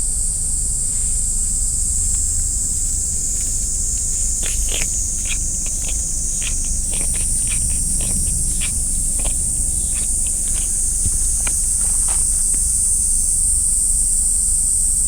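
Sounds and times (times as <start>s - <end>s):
insects buzzing: 0.0s - 15.0s
rustling: 4.0s - 12.6s.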